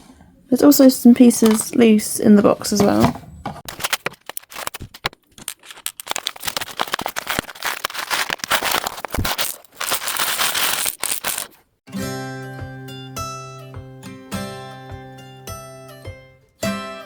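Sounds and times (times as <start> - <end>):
plastic bags crinkling: 3.6 - 11.7.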